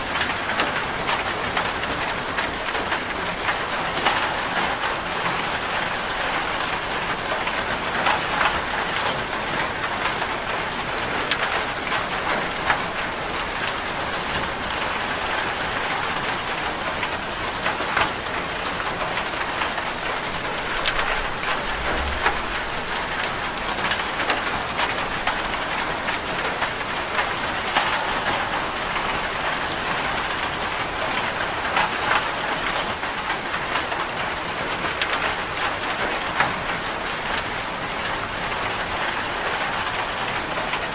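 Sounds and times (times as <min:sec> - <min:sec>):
steady rain hissing: 0:00.0 - 0:40.9.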